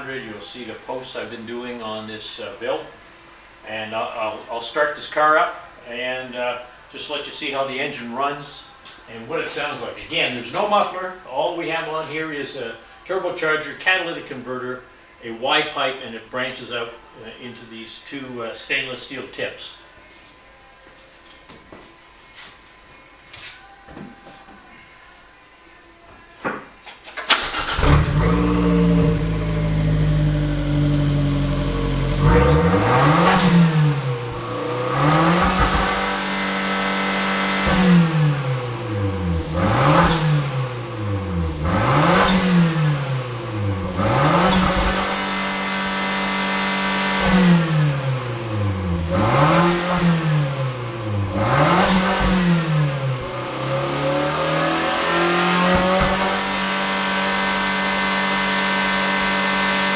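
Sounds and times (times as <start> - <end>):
car engine starting: 27.1 - 59.9
car engine idling: 27.3 - 45.4
car engine revving: 27.3 - 59.9.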